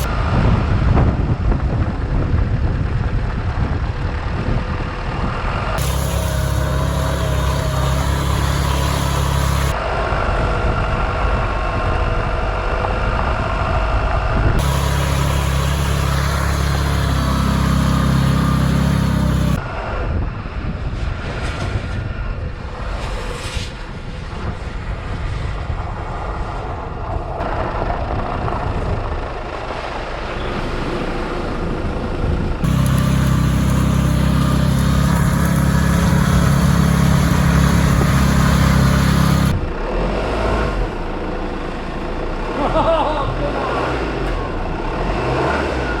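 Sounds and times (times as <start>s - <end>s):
car engine hum: 0.0s - 1.5s, 2.1s - 20.0s, 27.0s - 46.0s
tyres in snow and slush: 5.8s - 9.8s, 14.6s - 19.6s, 32.6s - 40.6s.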